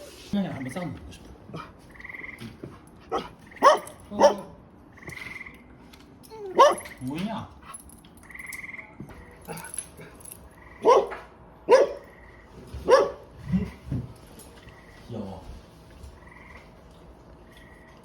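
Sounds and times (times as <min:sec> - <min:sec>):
dog barking: 0:03.1 - 0:04.6, 0:06.4 - 0:07.0, 0:10.7 - 0:12.2, 0:12.8 - 0:13.8.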